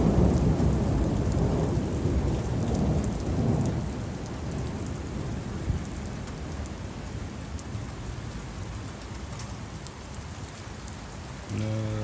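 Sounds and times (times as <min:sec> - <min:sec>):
heavy rain pattering: 0:00.0 - 0:12.0.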